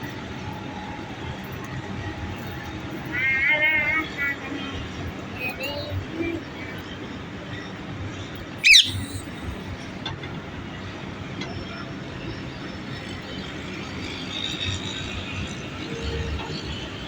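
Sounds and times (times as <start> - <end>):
steady background noise: 0.0 - 17.0
parrot screeching: 8.6 - 9.2.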